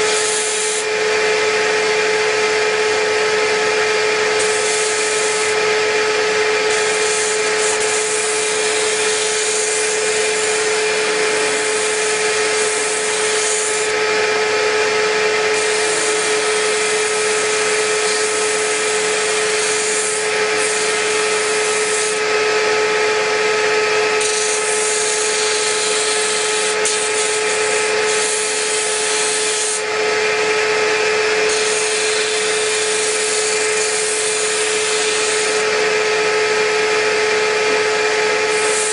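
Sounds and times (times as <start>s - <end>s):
disc sander humming: 0.0s - 38.9s
wood sanding hiss: 4.3s - 5.6s, 6.6s - 14.0s, 15.5s - 22.2s, 24.2s - 29.9s, 31.4s - 35.7s, 38.5s - 38.9s.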